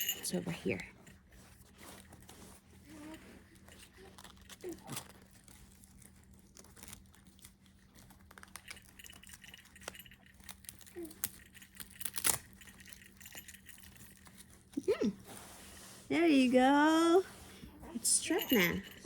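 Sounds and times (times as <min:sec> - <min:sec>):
fabric strap rustling: 0:08.2 - 0:19.0.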